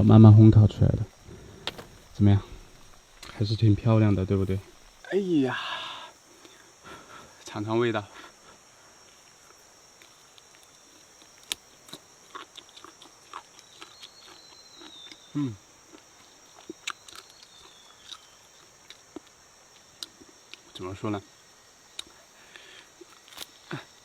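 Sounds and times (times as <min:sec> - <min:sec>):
faint high hiss: 0:00.0 - 0:12.2, 0:14.0 - 0:24.0
person chewing: 0:10.0 - 0:20.6.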